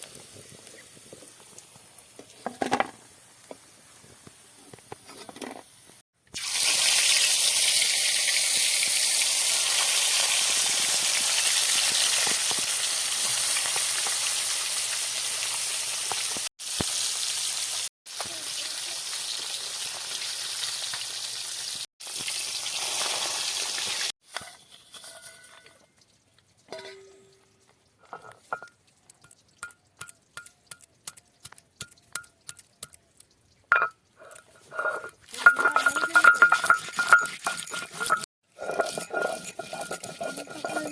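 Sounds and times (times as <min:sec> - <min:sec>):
food sizzling in hot oil: 0:06.4 - 0:25.6, 0:33.7 - 0:40.9
light clicks and clinks: 0:26.7 - 0:40.9.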